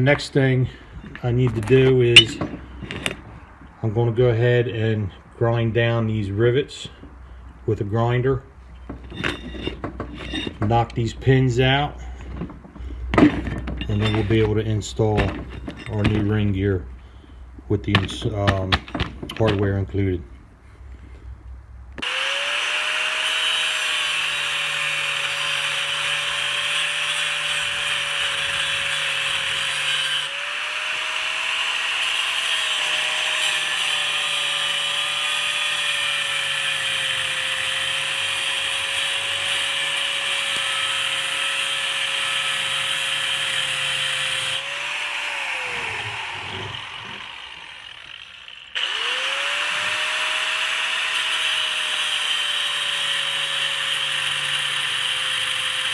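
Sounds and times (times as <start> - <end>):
disc grinder grinding metal: 9.0 - 10.6, 13.2 - 14.6, 22.0 - 55.9.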